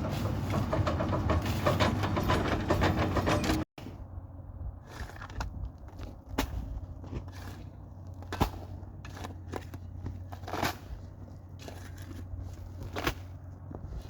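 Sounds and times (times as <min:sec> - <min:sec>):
excavator engine hum: 0:00.0 - 0:14.0
soil and stones crunching: 0:04.6 - 0:14.0.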